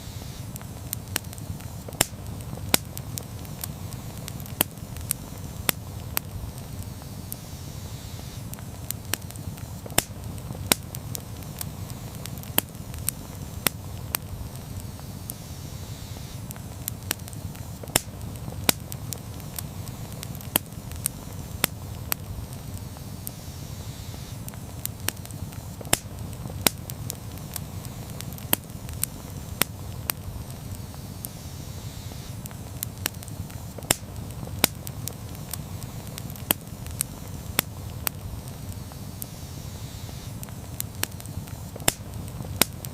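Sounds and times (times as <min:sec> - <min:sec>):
fire crackles and pops: 0:00.0 - 0:42.9
low rumble of flames: 0:00.0 - 0:42.9.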